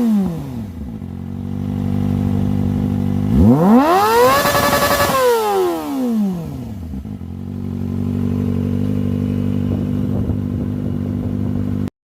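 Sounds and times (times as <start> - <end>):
motorcycle engine idling: 0.0 - 4.0, 6.0 - 11.9.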